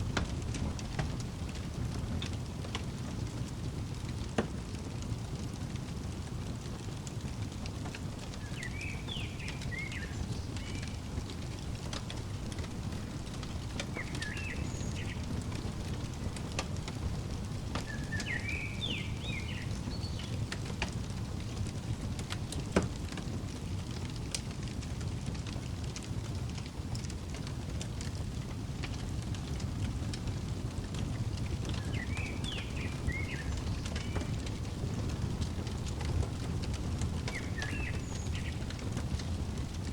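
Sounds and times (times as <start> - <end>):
fire crackling and popping: 0.0 - 39.9
small bird chirping: 8.4 - 16.4, 17.1 - 20.7, 31.4 - 39.4.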